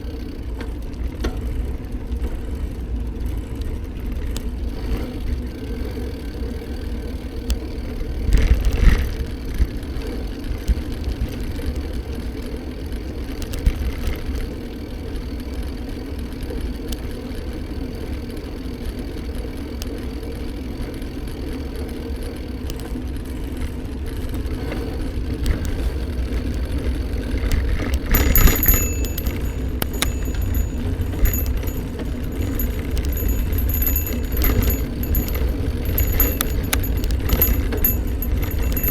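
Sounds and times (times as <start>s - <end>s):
bike riding rumble and hum: 0.0s - 38.9s
bike rattles and knocks: 22.8s - 38.9s.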